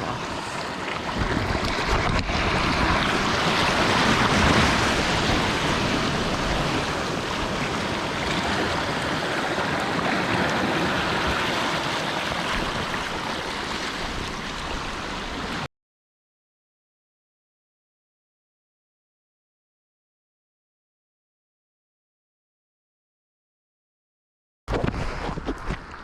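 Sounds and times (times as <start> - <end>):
sea surf on rocky shore: 0.0 - 15.7.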